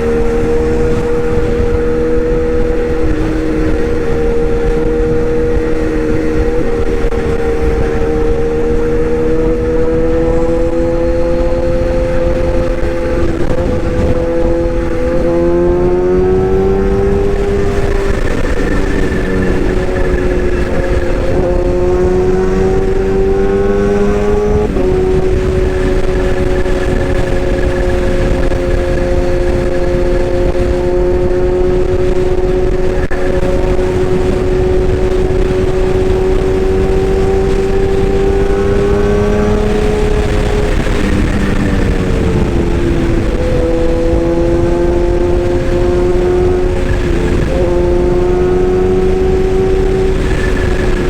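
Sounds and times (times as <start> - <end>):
excavator engine running: 12.4 - 30.0.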